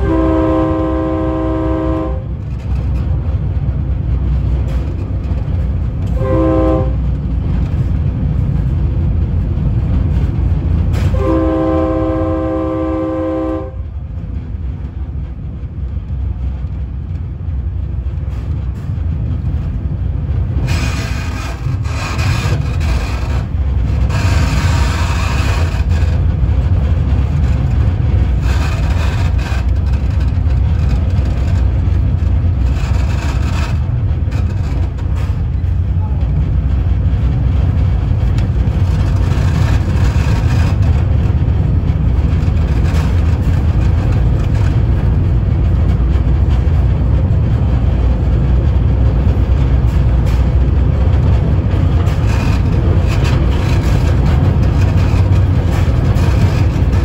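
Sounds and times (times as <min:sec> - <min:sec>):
train horn blast: 0:00.0 - 0:02.4, 0:06.0 - 0:07.1, 0:11.0 - 0:13.9, 0:24.1 - 0:26.0
train rumbling: 0:00.0 - 0:57.0.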